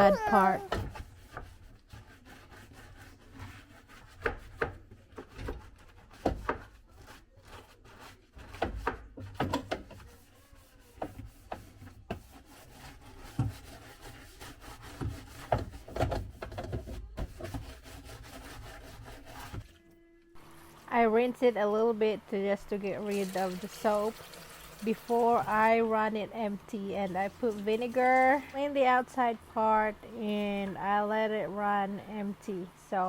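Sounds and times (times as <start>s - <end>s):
sponge scrubbing rubber seal: 0.0s - 19.7s.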